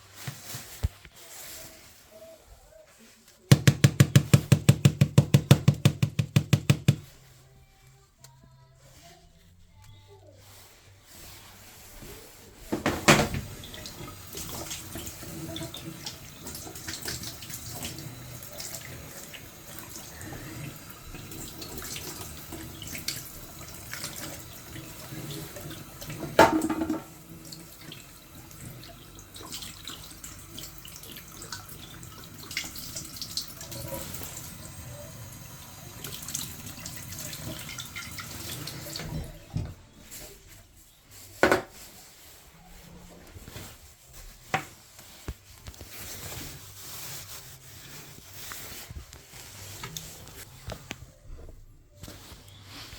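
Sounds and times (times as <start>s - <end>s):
water running and trickling: 12.9s - 39.7s.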